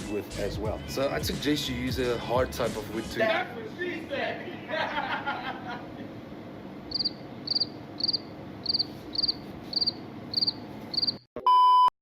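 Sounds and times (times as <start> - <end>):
cricket chirping: 6.9 - 11.2
short electronic beep: 11.4 - 11.9.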